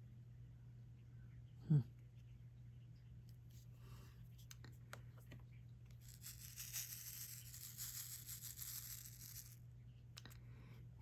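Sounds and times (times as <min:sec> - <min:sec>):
scratchy rustling: 0:06.0 - 0:09.6.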